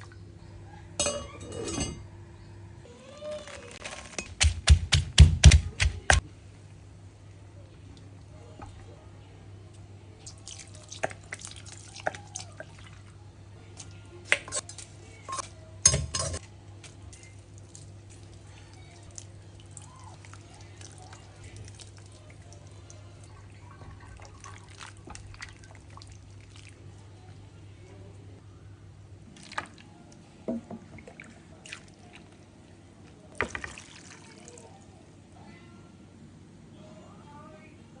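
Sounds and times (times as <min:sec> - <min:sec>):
utensil clinking on dish: 0:01.0 - 0:02.0
utensils and dishware clinking: 0:01.0 - 0:02.1, 0:14.3 - 0:16.4.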